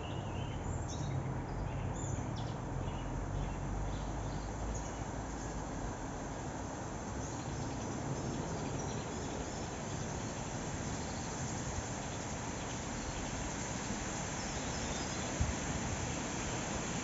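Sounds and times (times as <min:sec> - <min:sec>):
songbird chirps: 0:00.0 - 0:15.9
wind noise on microphone: 0:15.2 - 0:17.0.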